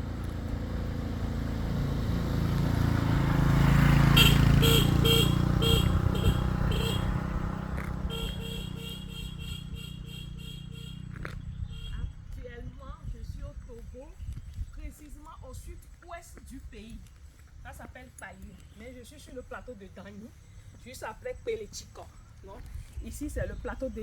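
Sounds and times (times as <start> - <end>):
vehicle engine rumble passing: 0.0 - 14.2.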